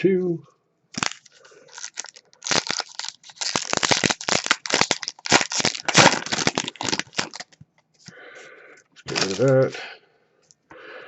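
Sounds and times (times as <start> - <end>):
wrapper tearing and crinkling: 1.0 - 7.6, 9.0 - 9.7.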